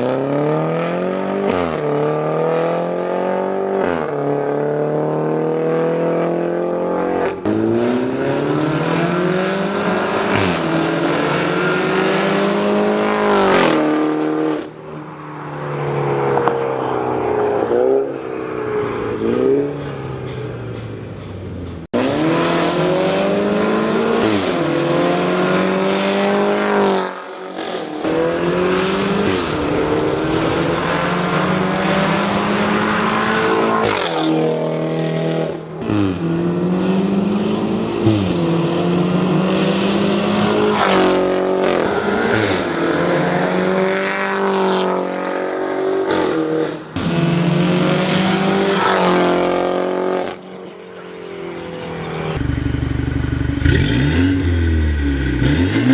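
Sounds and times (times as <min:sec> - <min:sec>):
car engine accelerating hard: 0:00.0 - 0:20.2, 0:21.9 - 0:50.4, 0:51.7 - 0:55.9
exhaust cracks: 0:52.4 - 0:55.9.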